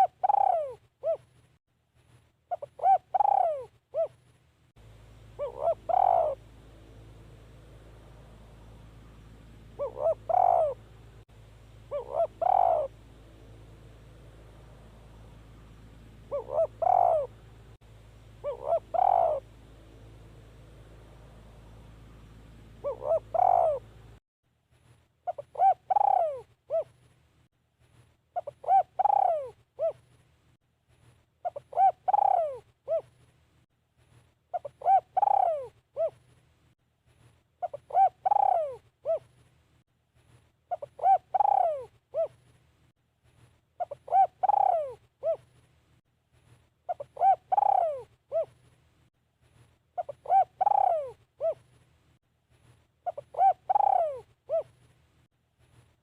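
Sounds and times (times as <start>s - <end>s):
dove cooing: 0.0s - 1.3s, 2.5s - 4.2s, 5.4s - 6.5s, 9.7s - 10.9s, 11.8s - 13.0s, 16.2s - 17.4s, 18.4s - 19.6s, 22.8s - 24.0s, 25.2s - 27.0s, 28.4s - 30.1s, 31.4s - 33.2s, 34.5s - 36.3s, 37.6s - 39.4s, 40.7s - 42.4s, 43.8s - 45.6s, 46.9s - 48.6s, 50.0s - 51.8s, 53.0s - 54.9s
steady background hiss: 0.0s - 56.0s.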